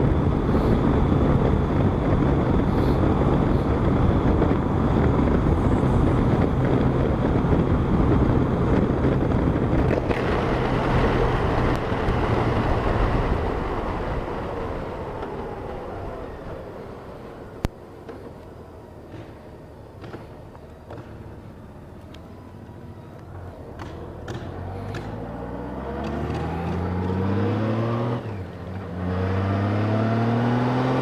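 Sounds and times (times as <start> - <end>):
wind rushing over microphone: 0.0 - 17.9.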